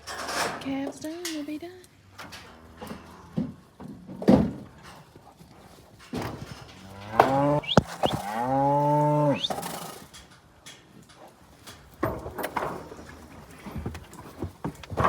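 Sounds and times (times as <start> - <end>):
calf bawling: 7.0 - 9.8.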